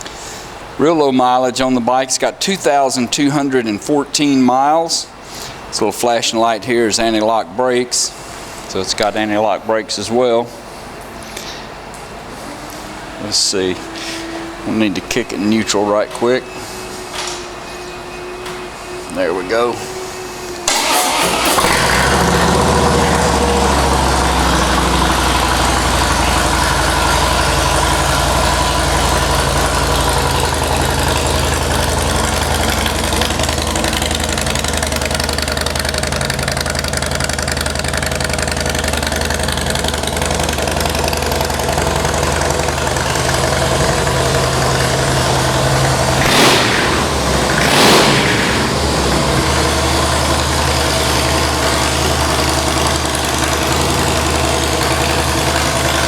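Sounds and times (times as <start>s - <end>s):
motorcycle engine idling and revving: 20.6s - 56.0s.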